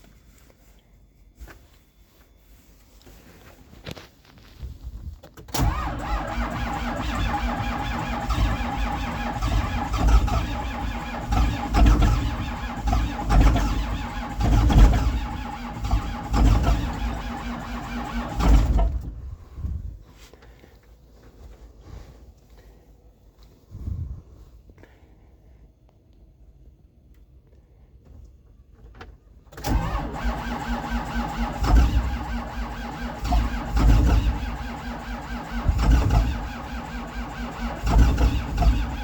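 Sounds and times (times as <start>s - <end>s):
diesel engine starter cranking: 5.4s - 19.8s, 29.5s - 39.0s.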